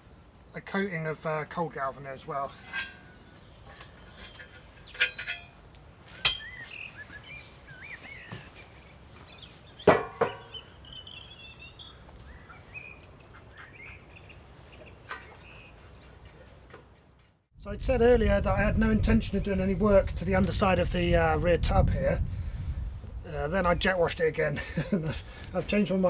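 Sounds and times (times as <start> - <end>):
birds chirping: 2.4 - 17.5
sharp knocks and clinks: 2.6 - 5.6, 6.2 - 6.6.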